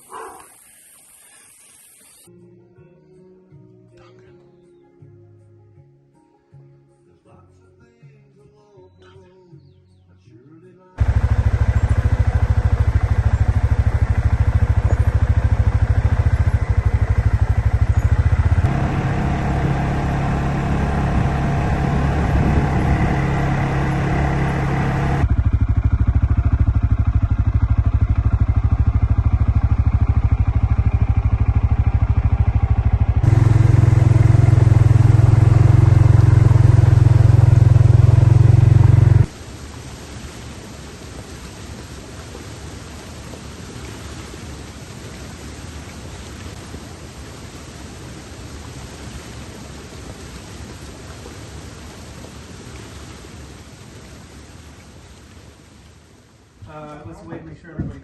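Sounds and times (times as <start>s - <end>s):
vehicle engine rumbling: 11.0s - 39.4s.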